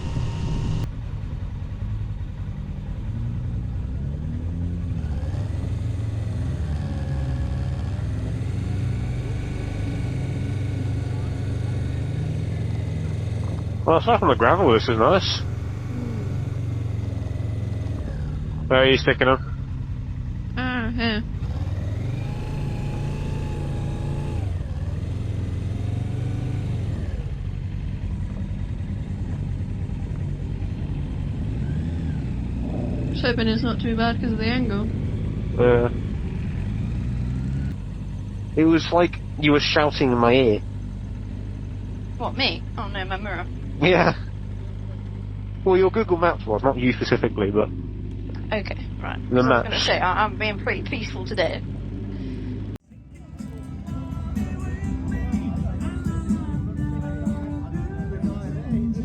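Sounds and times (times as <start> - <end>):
motorcycle engine at low revs: 0.0 - 59.0.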